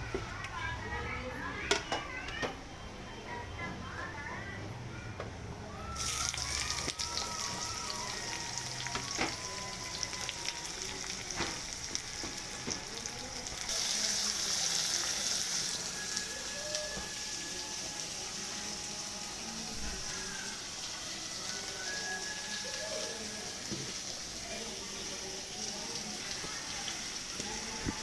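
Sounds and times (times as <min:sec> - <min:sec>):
spices sizzling in a pan: 0:06.0 - 0:28.0.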